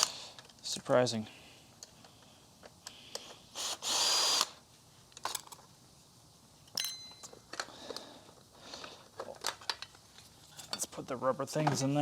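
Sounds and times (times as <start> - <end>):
clicks and knocks of handled parts: 5.1 - 5.7, 6.7 - 11.0.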